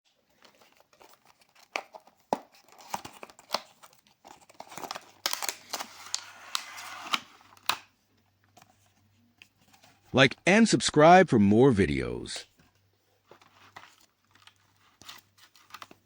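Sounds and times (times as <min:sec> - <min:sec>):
plastic crinkling and tearing: 0:00.9 - 0:07.8.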